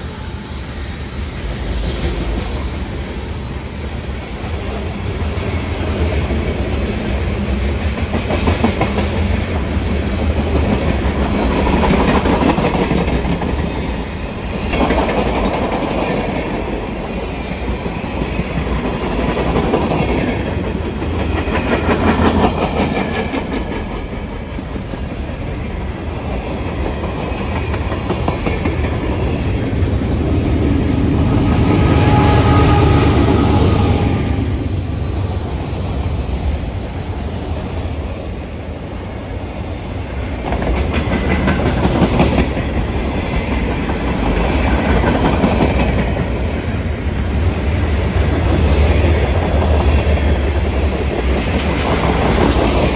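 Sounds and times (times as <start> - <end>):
low train rumble: 0.0 - 52.9
train wheels clacking over rail joints: 40.1 - 46.3.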